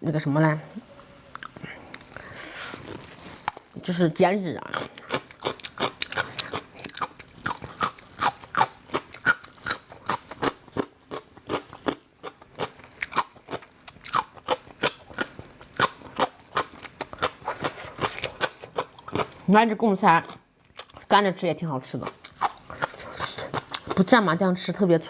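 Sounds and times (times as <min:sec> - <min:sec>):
crunchy chewing: 0:01.1 - 0:03.9, 0:04.6 - 0:19.5, 0:22.0 - 0:24.1.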